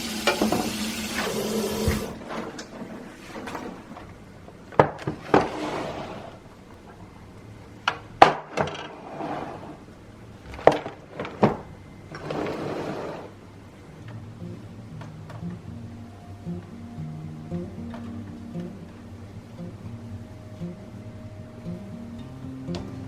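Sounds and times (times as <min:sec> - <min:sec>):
scraping or rustling: 0:01.9 - 0:04.2, 0:05.0 - 0:06.4, 0:08.8 - 0:09.8.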